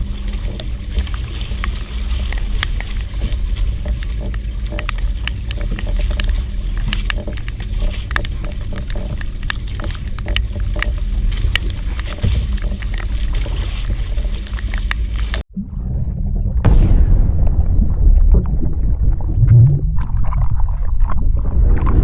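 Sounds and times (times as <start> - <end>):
boat engine rumbling: 0.0 - 22.0.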